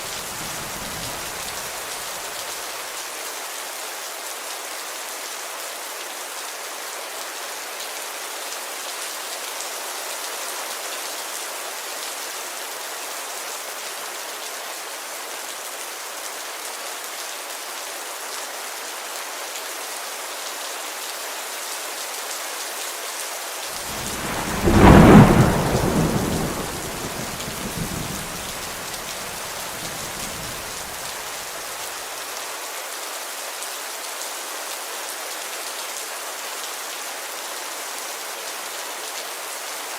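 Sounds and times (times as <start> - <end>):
rain hissing on a window: 0.0 - 39.9
thunder clap rumbling: 23.8 - 31.1.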